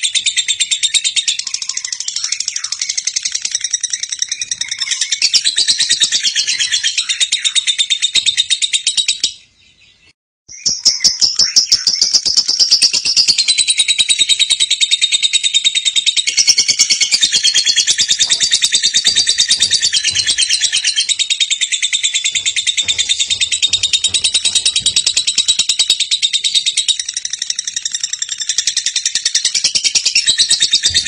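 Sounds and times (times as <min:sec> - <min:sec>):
lovebird chattering trill: 0:10.6 - 0:31.0.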